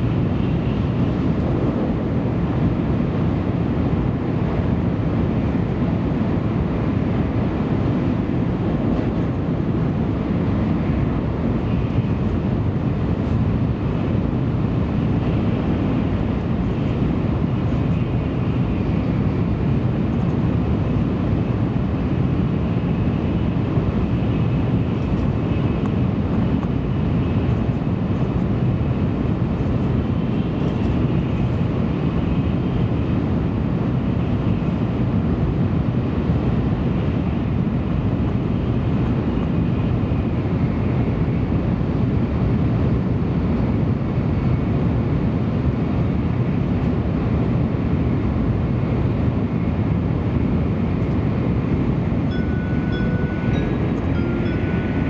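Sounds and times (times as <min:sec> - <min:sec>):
train rumble inside passenger car: 0:00.0 - 0:55.0
faint high hum: 0:51.0 - 0:55.0.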